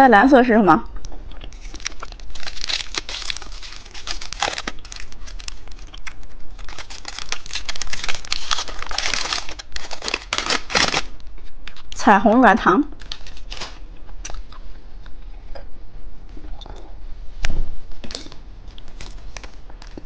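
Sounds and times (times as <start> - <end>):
candy packaging crinkling: 1.5 - 12.0, 12.9 - 14.6, 18.0 - 20.0.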